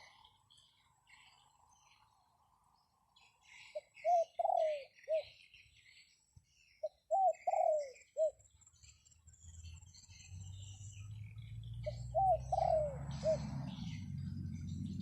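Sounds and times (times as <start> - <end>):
small birds chirping: 0.0 - 15.0
dove cooing: 3.7 - 5.3, 6.8 - 8.4, 11.8 - 15.0.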